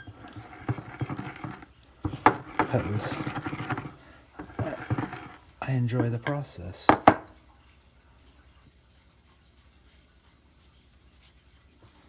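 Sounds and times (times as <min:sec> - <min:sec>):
faint light scratching: 0:00.0 - 0:06.2.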